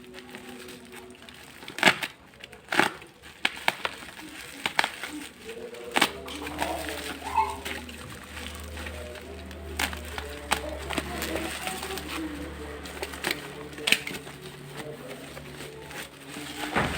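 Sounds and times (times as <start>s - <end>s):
packaging clicks and knocks: 0.0s - 16.9s.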